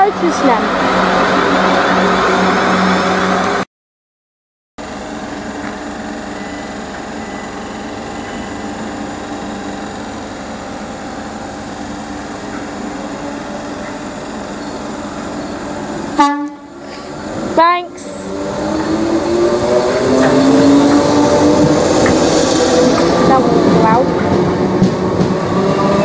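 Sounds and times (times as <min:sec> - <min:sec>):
train mechanical hum: 0:04.8 - 0:26.0
loud horn-like sound: 0:16.2 - 0:16.8.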